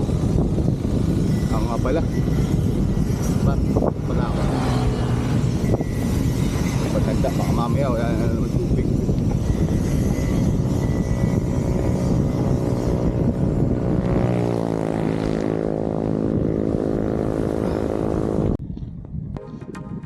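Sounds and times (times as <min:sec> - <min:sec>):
passing vehicle engine droning: 0:00.0 - 0:08.0
wind rush on microphone: 0:00.0 - 0:20.0.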